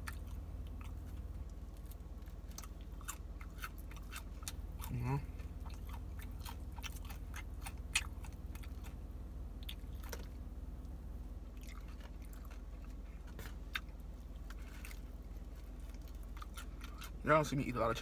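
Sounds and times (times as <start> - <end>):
person chewing with mouth clicks: 0.0 - 9.0, 9.6 - 10.4, 11.5 - 17.2
low hum: 0.0 - 18.0.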